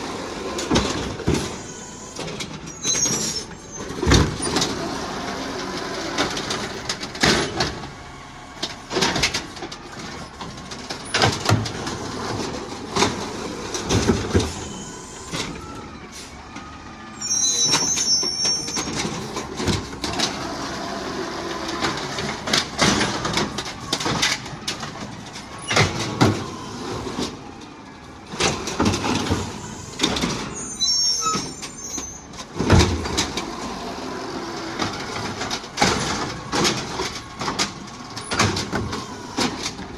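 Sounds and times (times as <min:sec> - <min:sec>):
bins banging and clattering: 0:00.0 - 0:08.0, 0:08.6 - 0:16.6, 0:17.6 - 0:39.9
garbage truck engine running: 0:00.0 - 0:39.9
high squeal: 0:01.6 - 0:04.0, 0:17.2 - 0:19.2, 0:29.7 - 0:32.3.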